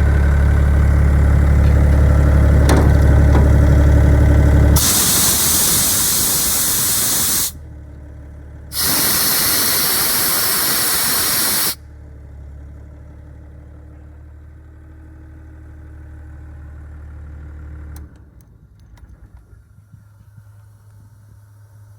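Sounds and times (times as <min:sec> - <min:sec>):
diesel engine humming: 0:00.0 - 0:14.2
compressed air blasting: 0:04.8 - 0:07.6, 0:08.7 - 0:11.8.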